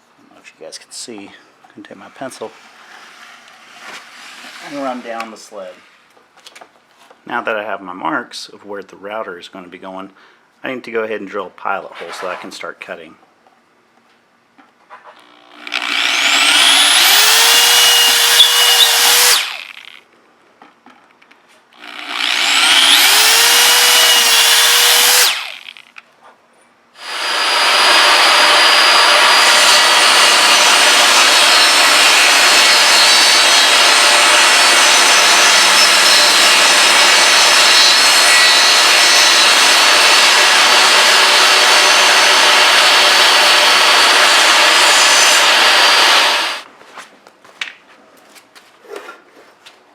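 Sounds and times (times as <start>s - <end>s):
power saw cutting plywood: 2.4s - 5.4s, 15.2s - 20.0s, 21.8s - 25.9s, 27.0s - 46.7s
power drill boring wood: 15.2s - 20.0s, 21.8s - 25.9s, 27.0s - 46.7s.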